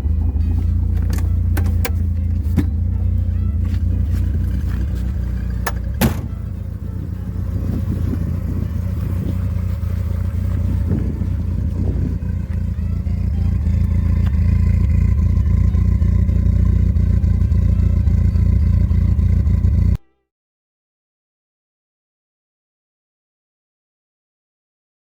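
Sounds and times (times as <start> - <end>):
car engine droning: 0.0 - 20.0.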